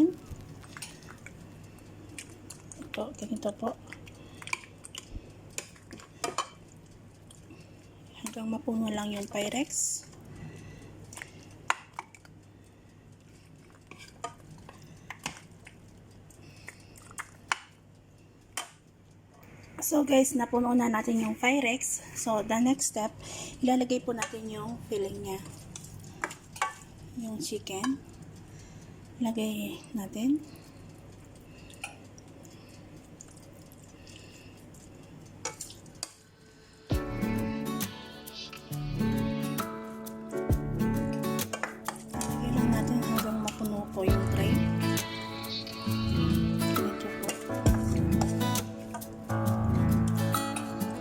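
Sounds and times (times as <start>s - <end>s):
acoustic guitar music: 36.9s - 51.0s.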